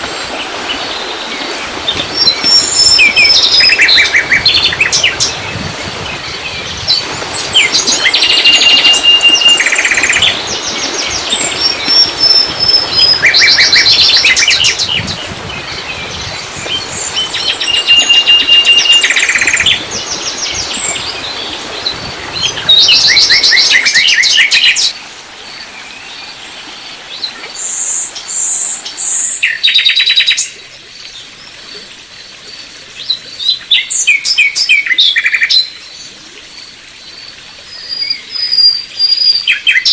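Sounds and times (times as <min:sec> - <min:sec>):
songbirds trilling: 0:00.2 - 0:30.4.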